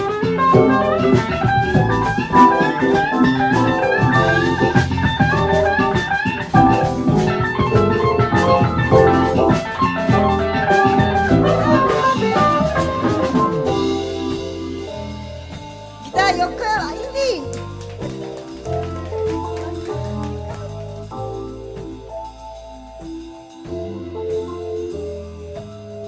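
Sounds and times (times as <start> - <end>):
guitar lead line: 0.0 - 15.2
drum kit: 0.0 - 26.0.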